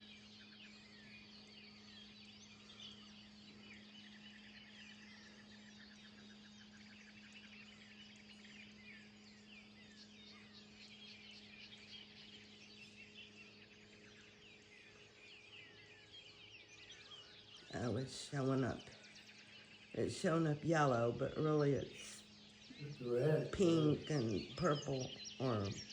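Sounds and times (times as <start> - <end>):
bird trill: 0.0 - 25.9
birds chirping and calling: 0.0 - 25.9
steady low hum: 0.0 - 25.9.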